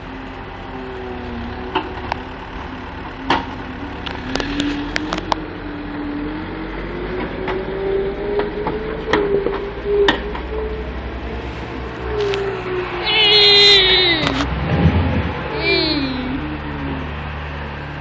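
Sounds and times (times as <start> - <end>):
diesel engine revving: 0.0 - 18.0.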